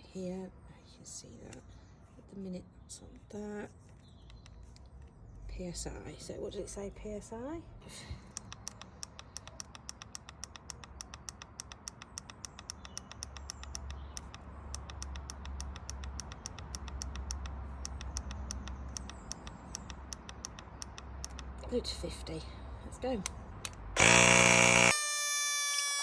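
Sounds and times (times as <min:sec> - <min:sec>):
rapid regular clicking: 0:08.2 - 0:21.6
low hum: 0:23.6 - 0:24.9.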